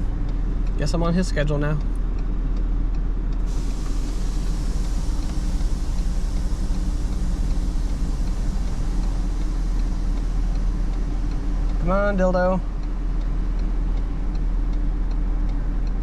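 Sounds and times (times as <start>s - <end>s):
vehicle engine idling: 0.0s - 16.0s
steady hiss: 3.5s - 14.6s.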